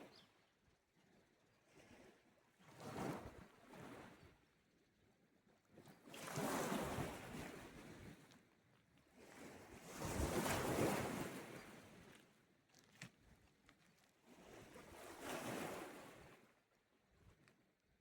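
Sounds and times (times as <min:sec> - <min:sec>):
small waves washing ashore: 0:09.2 - 0:11.6.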